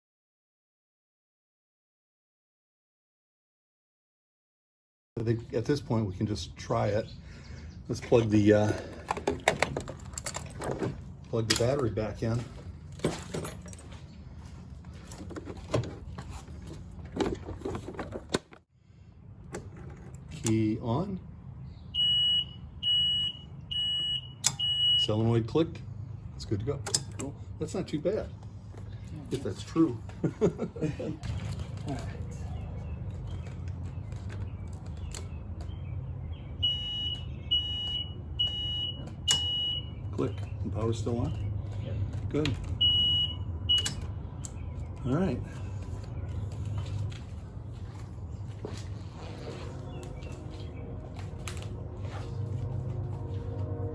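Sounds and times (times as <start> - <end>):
low steady hum: 36.6 - 53.9.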